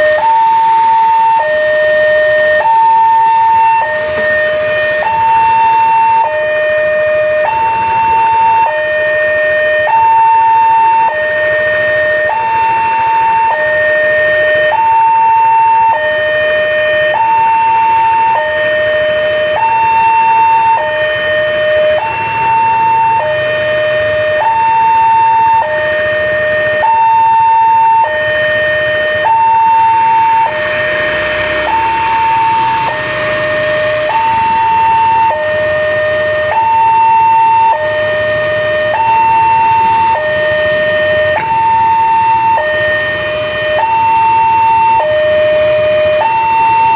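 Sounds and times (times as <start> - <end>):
level crossing two-tone alarm: 0.0 - 46.9
rushing noise: 29.8 - 36.5.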